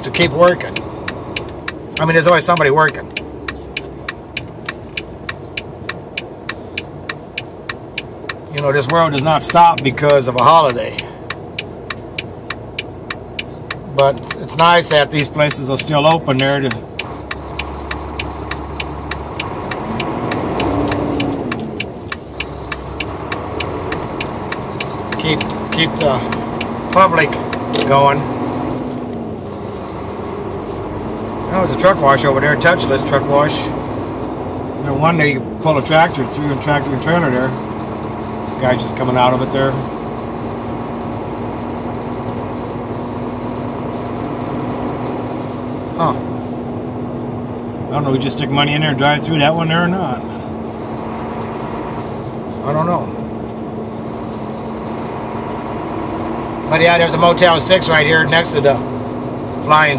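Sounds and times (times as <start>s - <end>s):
truck engine running: 0.0s - 59.9s
turn signal ticking: 0.0s - 59.9s.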